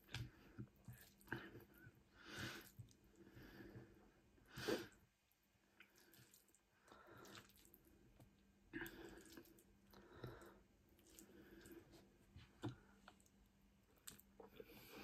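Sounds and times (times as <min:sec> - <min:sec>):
chewing noodles: 0:00.0 - 0:01.8, 0:05.8 - 0:14.8.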